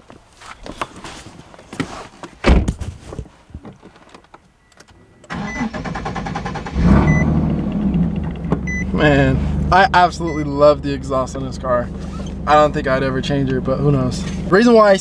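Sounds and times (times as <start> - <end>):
heavy thump: 2.4 - 3.3
car engine starting and running: 4.7 - 15.0.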